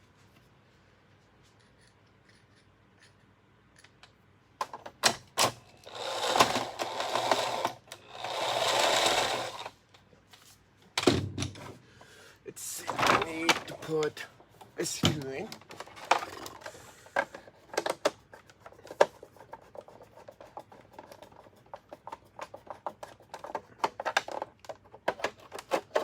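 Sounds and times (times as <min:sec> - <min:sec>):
plastic parts clicking and knocking: 0:03.8 - 0:09.7, 0:14.6 - 0:26.0
rough rasping noises: 0:05.8 - 0:09.7.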